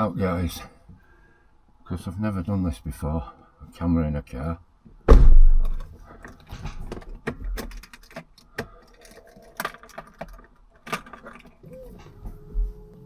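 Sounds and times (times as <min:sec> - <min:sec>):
sharp clicks and knocks: 0:05.1 - 0:11.6.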